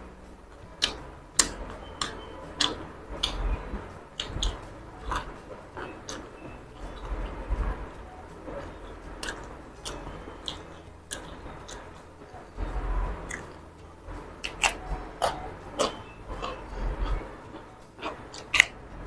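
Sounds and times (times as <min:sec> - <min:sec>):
person chewing crisp cucumber: 0:00.8 - 0:03.4, 0:14.4 - 0:16.8, 0:17.6 - 0:18.8.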